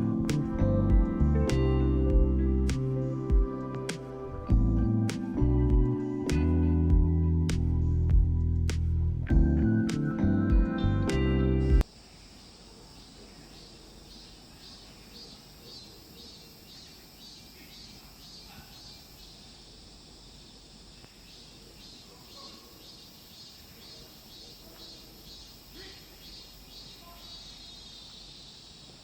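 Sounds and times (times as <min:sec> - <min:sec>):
faint outdoor background noise: 0:00.0 - 0:29.0
insects chirping: 0:11.8 - 0:29.0.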